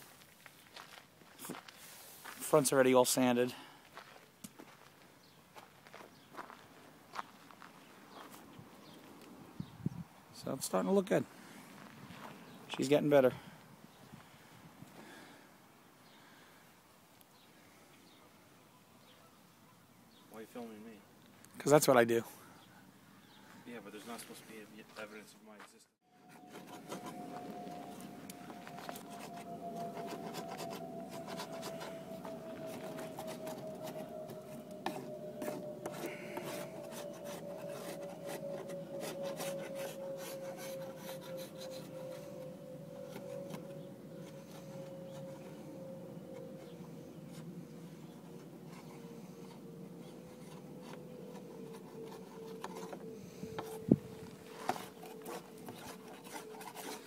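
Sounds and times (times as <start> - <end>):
faint steady tone: 26.2 - 57.0.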